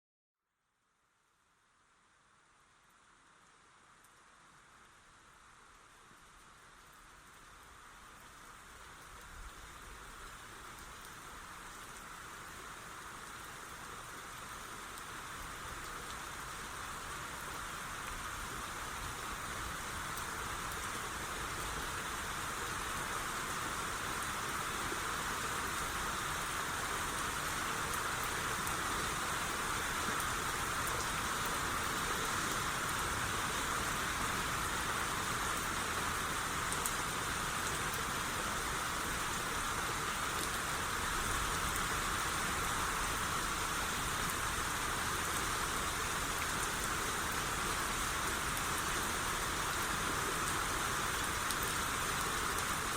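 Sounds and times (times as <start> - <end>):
faint raindrop ticks: 2.8 - 16.6, 17.4 - 22.8, 26.8 - 33.0, 36.5 - 38.3, 40.3 - 42.0
rain hissing: 3.1 - 52.9.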